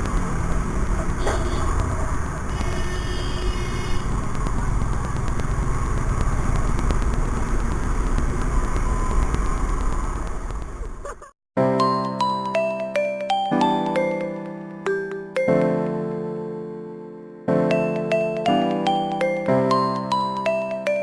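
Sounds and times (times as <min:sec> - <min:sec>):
wind rush: 0:00.0 - 0:11.0
motorcycle engine and road rumble: 0:00.0 - 0:11.3.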